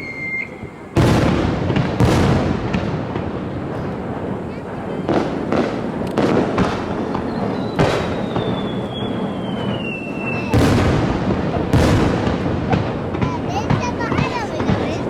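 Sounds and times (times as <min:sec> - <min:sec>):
firework whistle sliding down: 0:00.0 - 0:01.0, 0:07.3 - 0:10.5.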